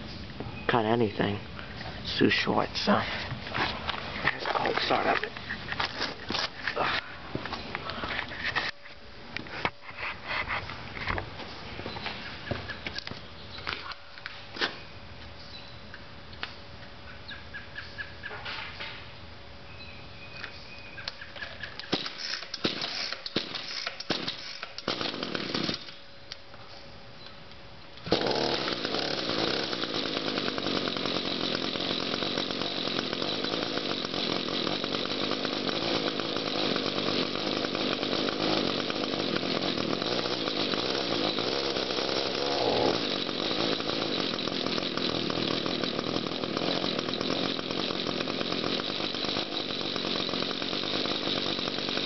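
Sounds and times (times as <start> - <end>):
string trimmer engine running: 22.0 - 26.0, 28.0 - 52.0.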